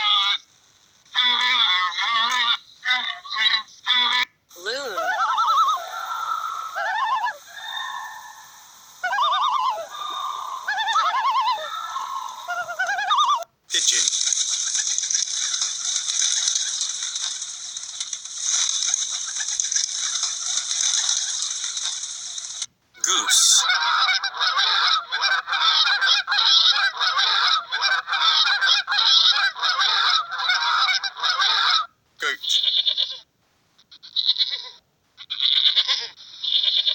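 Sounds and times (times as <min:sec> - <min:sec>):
loon tremolo call: 0:04.9 - 0:13.4
geese honking: 0:05.0 - 0:13.4, 0:23.3 - 0:31.9.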